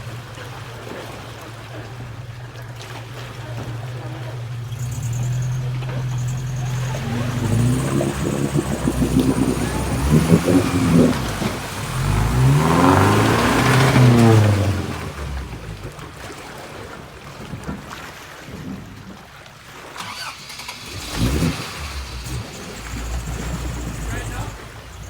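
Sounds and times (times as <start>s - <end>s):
truck engine revving under load: 2.8s - 16.2s, 20.0s - 25.0s.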